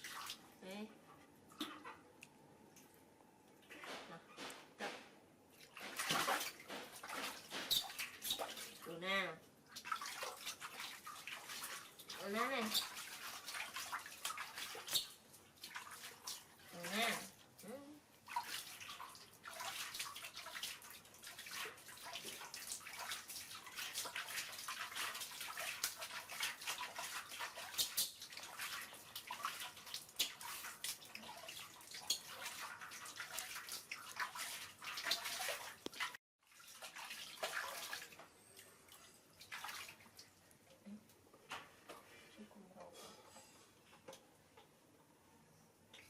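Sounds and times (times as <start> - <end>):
water splashing in bathtub: 0.0 - 0.9, 3.6 - 42.1
water dripping: 5.5 - 8.9, 9.6 - 41.6.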